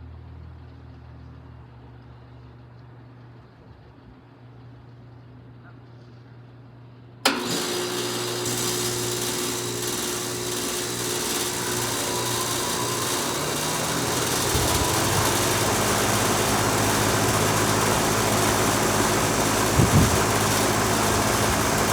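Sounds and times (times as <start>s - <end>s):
compressor humming: 7.2s - 21.9s
fan rushing: 7.2s - 21.9s.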